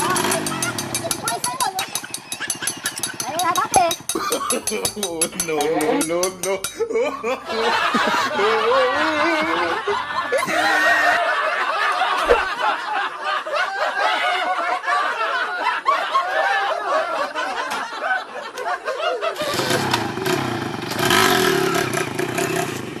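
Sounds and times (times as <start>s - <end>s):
motorcycle engine running: 0.0s - 1.4s, 19.5s - 23.0s
person laughing: 4.2s - 5.0s, 5.7s - 11.4s, 12.2s - 12.6s.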